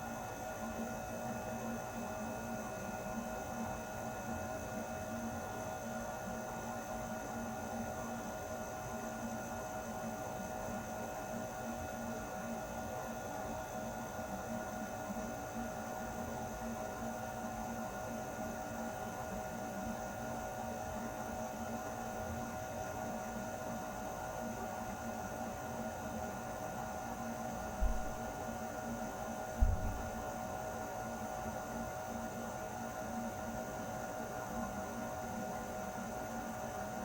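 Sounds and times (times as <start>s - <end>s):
air conditioner humming: 27.8s - 28.4s, 29.6s - 30.2s.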